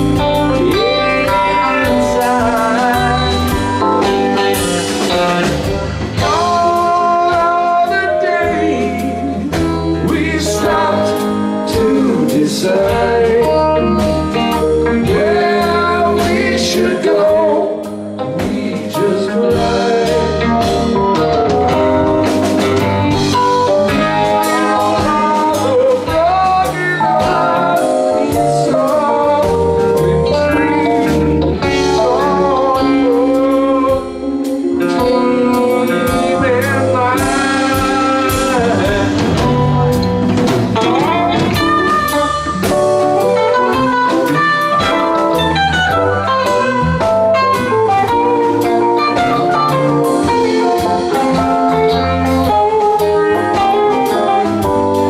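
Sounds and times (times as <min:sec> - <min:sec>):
lead guitar gliding in pitch: 0:00.0 - 0:11.6, 0:27.0 - 0:55.0
live rock band playing: 0:00.0 - 0:55.0.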